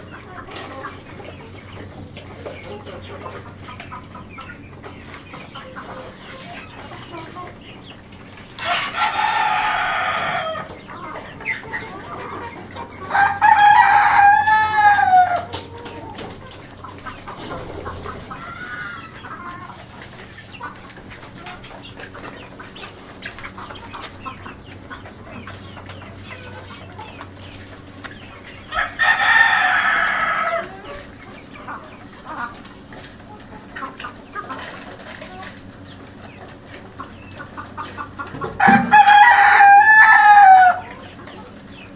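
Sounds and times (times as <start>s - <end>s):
hens clucking: 0.0s - 41.9s
rooster crowing: 8.6s - 10.7s, 13.1s - 15.5s, 28.7s - 30.8s, 38.6s - 41.0s.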